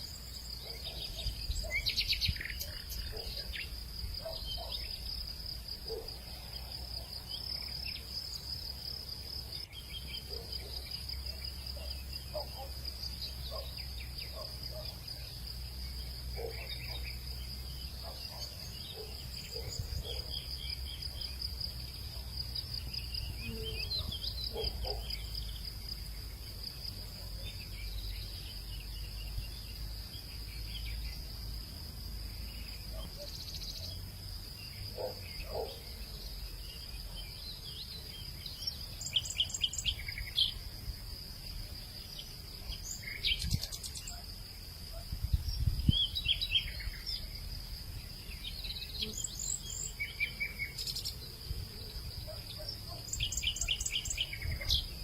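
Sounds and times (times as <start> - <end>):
birds chirping: 0.0 - 5.1, 34.6 - 40.7
crickets and insects droning: 0.0 - 55.0.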